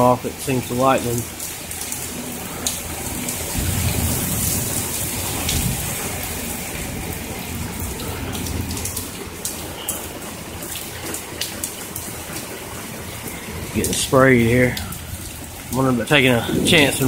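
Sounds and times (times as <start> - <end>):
heavy rain falling: 0.0 - 17.0
raindrops spattering close by: 0.0 - 17.0
low thunder rumble: 2.0 - 9.7, 13.0 - 17.0.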